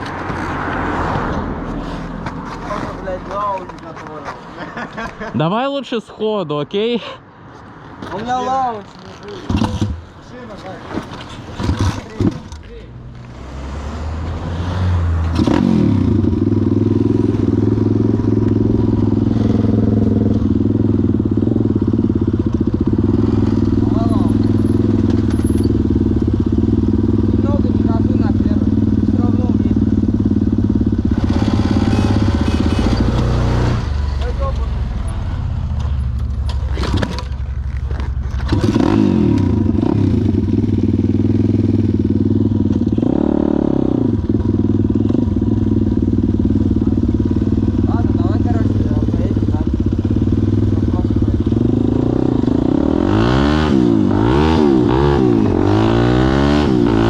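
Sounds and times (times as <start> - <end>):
pit bike engine revving: 13.3 - 37.4, 38.3 - 57.0.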